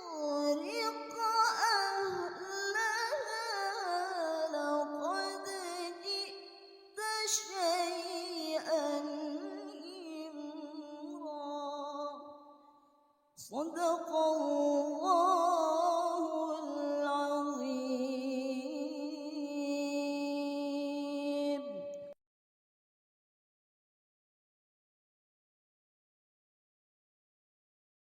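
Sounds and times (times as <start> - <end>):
woman chanting melodically: 13.4 - 22.2.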